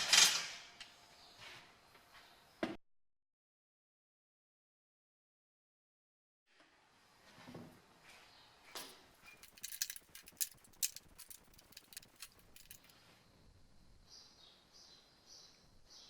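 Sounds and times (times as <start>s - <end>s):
small hard objects clinking: 8.8s - 12.9s.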